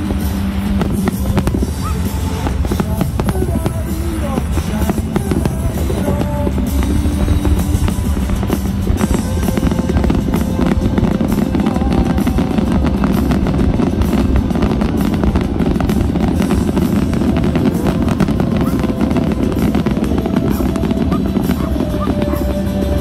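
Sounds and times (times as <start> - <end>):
fireworks crackling and popping: 0.0 - 23.0
music with drum beat: 0.0 - 23.0.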